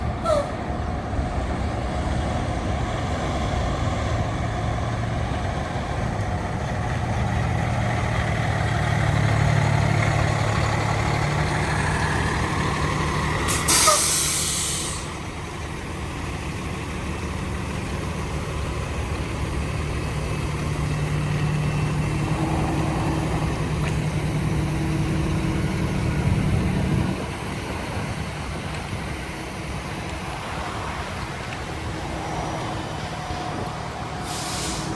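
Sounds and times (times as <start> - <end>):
diesel truck engine running: 0.0 - 34.9
air brakes hissing: 0.2 - 0.7, 13.4 - 15.3, 33.5 - 34.9.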